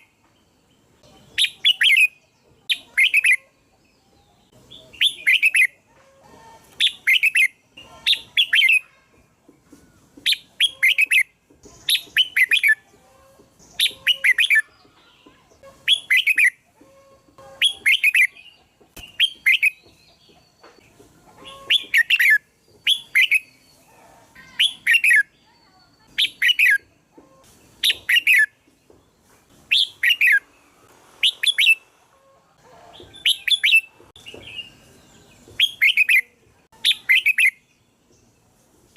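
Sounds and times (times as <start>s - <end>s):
bird singing chirpy phrases: 0.0s - 5.8s, 6.8s - 9.0s, 10.3s - 12.8s, 13.6s - 16.6s, 21.4s - 27.1s, 27.7s - 30.6s, 33.1s - 38.4s.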